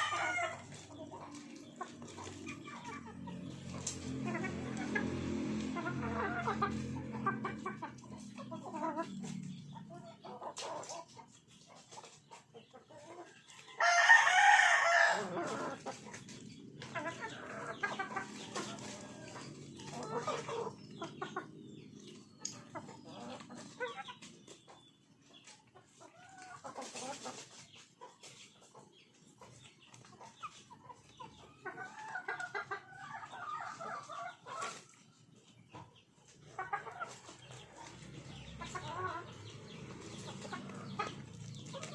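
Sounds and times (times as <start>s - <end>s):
rooster crowing: 0.0s - 0.7s, 13.8s - 15.6s
chickens clucking: 0.0s - 41.9s.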